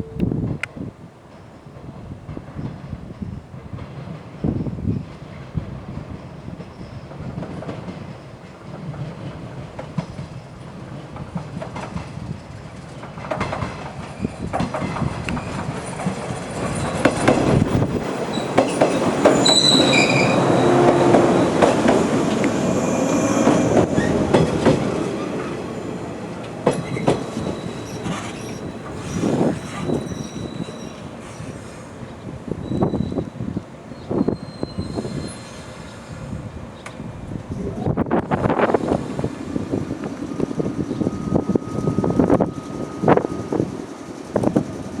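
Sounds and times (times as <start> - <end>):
train wheels clicking over rail joints: 1.3 - 32.1
high wheel squeal: 16.7 - 31.9, 32.6 - 36.2, 39.6 - 44.9.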